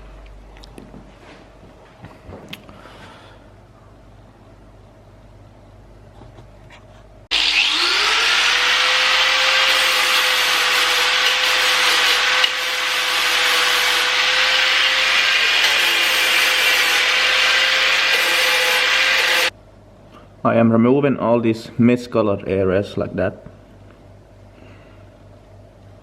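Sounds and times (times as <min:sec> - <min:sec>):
power tool motor whine: 0:07.3 - 0:19.5
sanding grinding rasp: 0:07.4 - 0:19.5.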